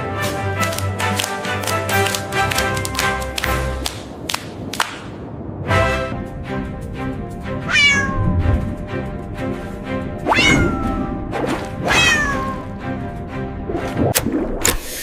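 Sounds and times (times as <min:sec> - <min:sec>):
cartoon music: 0:07.6 - 0:08.6, 0:10.2 - 0:12.8.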